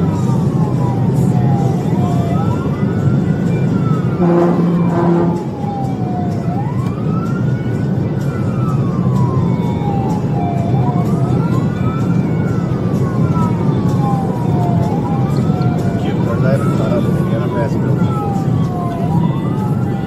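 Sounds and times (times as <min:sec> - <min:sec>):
patrol car engine drone: 0:00.0 - 0:20.0
police siren wailing: 0:00.0 - 0:20.0
short horn blasts: 0:04.2 - 0:05.4.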